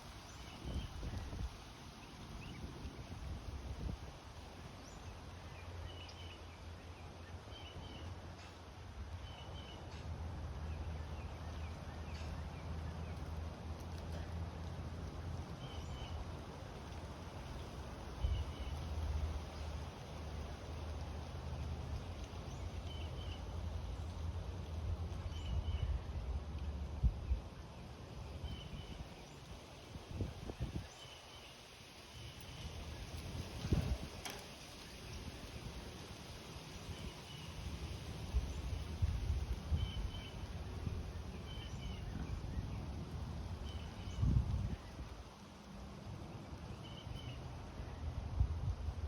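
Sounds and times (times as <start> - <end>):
small birds chirping: 17.3 - 24.3.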